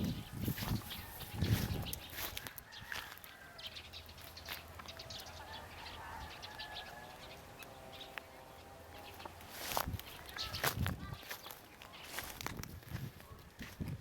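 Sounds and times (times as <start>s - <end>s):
longer bird calls: 0.0s - 12.4s
birds chirping: 0.0s - 14.0s.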